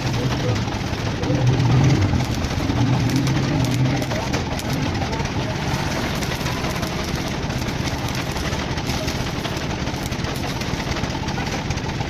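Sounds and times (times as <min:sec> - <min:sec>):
machine rumbling: 0:00.0 - 0:12.0.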